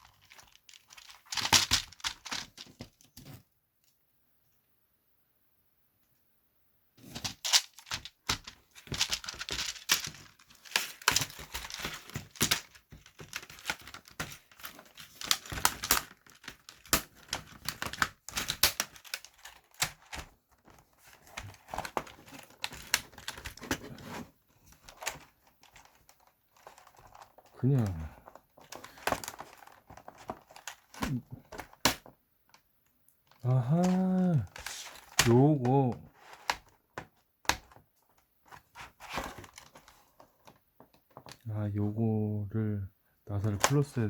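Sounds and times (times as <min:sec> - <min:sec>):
thin plastic sheet crinkling: 0:00.0 - 0:03.0, 0:07.0 - 0:23.8, 0:33.2 - 0:35.6.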